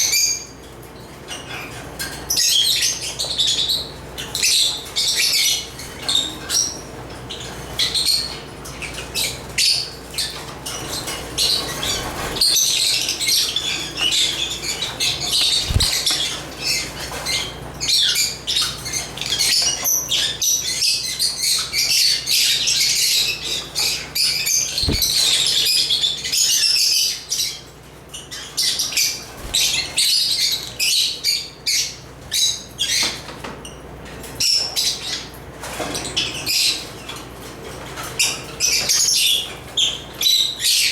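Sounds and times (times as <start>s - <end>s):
lovebirds chattering: 8.8s - 22.5s, 23.5s - 26.4s, 28.2s - 32.5s
wing flutters: 10.8s - 17.0s, 24.7s - 25.7s, 29.2s - 30.5s.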